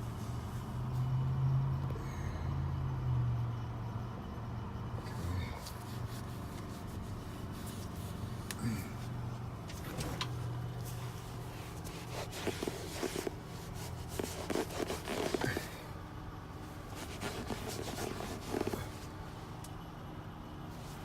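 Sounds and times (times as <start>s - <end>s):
steady low hum: 0.0s - 21.0s
rubbing and handling sounds: 5.6s - 8.5s, 10.8s - 15.8s, 16.8s - 19.2s.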